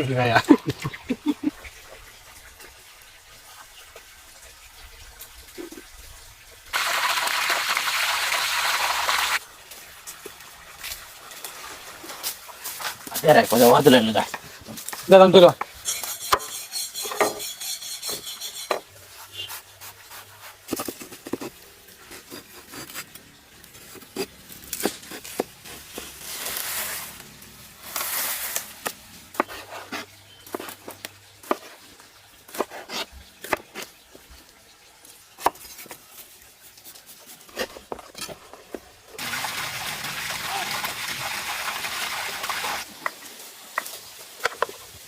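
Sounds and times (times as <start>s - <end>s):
knife scraping: 15.8s - 23.2s.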